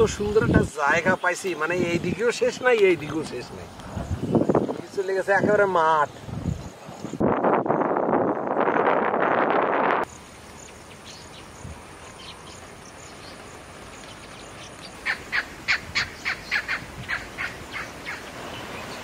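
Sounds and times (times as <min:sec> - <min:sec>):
bird calling: 0:10.1 - 0:19.0.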